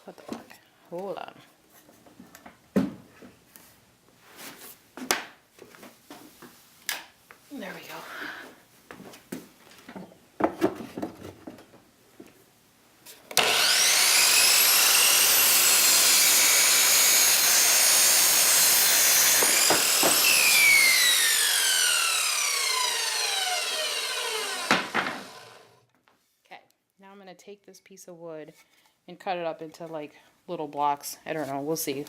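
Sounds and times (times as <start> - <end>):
knocks of handling wood: 8.9 - 12.4, 19.2 - 20.5, 24.6 - 25.3
power saw whining: 13.3 - 25.8.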